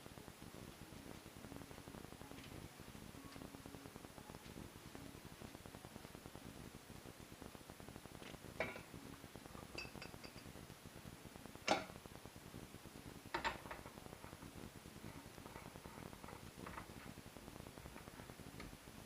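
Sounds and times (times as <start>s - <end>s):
dishes and utensils clinking: 9.7s - 10.5s.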